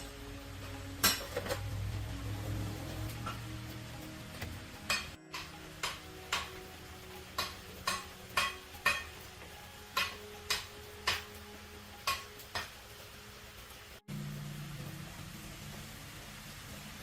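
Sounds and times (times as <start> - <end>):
low hum: 0.0 - 7.2
tool tapping metal: 0.7 - 1.7, 4.3 - 12.8.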